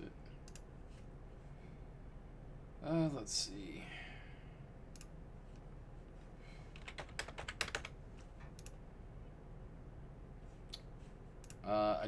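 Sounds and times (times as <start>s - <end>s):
faint low hum: 0.0s - 12.0s
keyboard typing: 6.8s - 8.0s.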